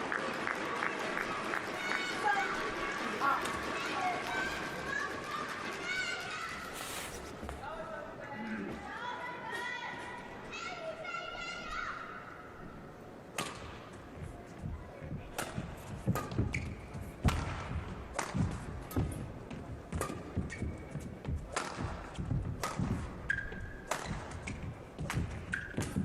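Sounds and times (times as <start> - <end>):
shoes squeaking: 6.4 - 7.6, 15.9 - 17.2, 18.9 - 26.0
racket hitting shuttlecock: 13.3 - 13.8, 15.4 - 19.2, 19.9 - 26.0.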